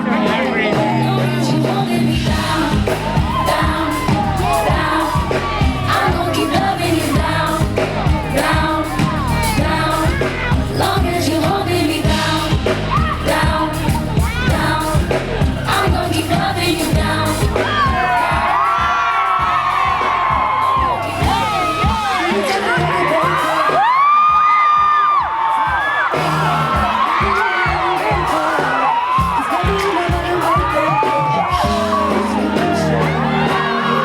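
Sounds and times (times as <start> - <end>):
bass-heavy backing beat: 0.0 - 34.0
crowd noise: 0.0 - 34.0
women singing pop song: 0.0 - 34.0.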